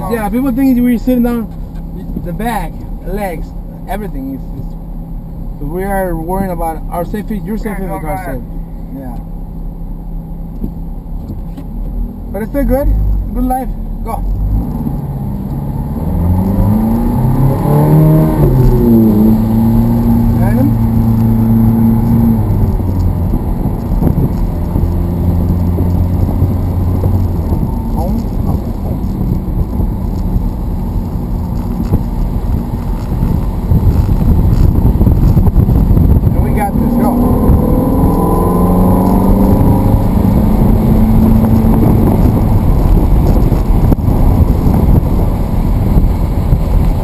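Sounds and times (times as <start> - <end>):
road and wind rush: 0.0 - 47.0
sports car engine running: 0.0 - 47.0.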